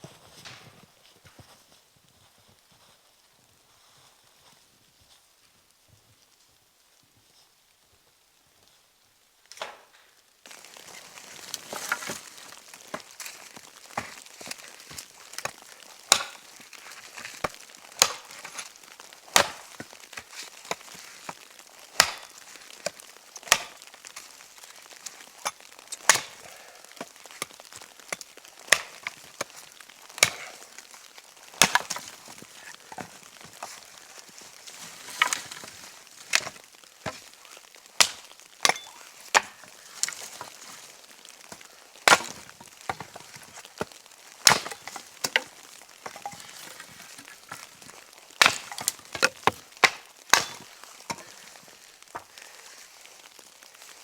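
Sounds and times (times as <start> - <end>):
wood chopping strikes: 10.6 - 16.6, 17.4 - 21.4, 22.0 - 24.0, 25.4 - 29.5, 30.1 - 30.9, 31.6 - 33.8, 38.0 - 40.6, 41.5 - 47.7, 48.4 - 51.3.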